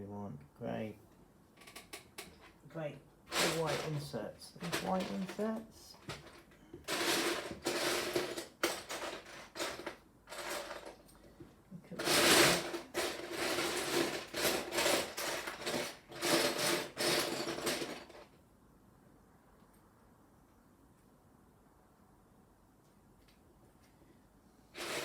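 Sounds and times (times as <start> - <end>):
plastic toy bricks rattling: 4.6 - 11.0, 12.0 - 18.2, 24.8 - 25.0.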